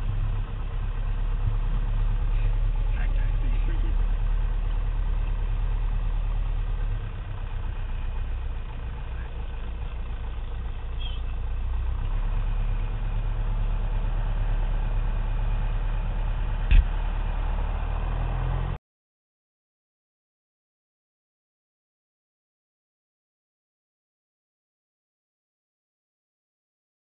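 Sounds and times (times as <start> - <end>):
propeller plane engine drone: 0.0 - 18.8
sharp knock: 16.7 - 16.9.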